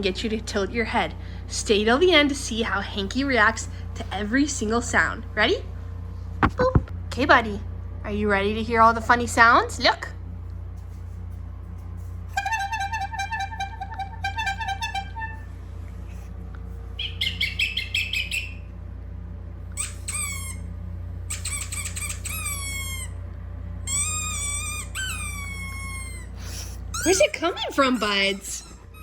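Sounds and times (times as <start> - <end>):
steady low hum: 0.0 - 29.0
falling pitch squeaks: 12.4 - 15.5, 19.8 - 20.7, 21.3 - 23.2, 23.9 - 29.0
high squeaks: 12.4 - 15.6, 19.7 - 20.7, 21.3 - 23.2, 23.9 - 29.0.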